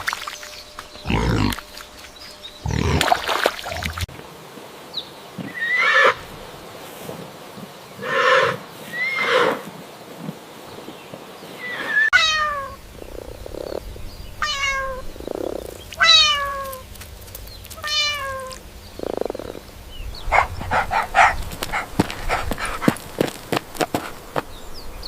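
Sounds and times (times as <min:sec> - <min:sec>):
cat meowing: 0:11.9 - 0:12.8, 0:14.4 - 0:15.1, 0:16.0 - 0:16.9, 0:17.8 - 0:18.6.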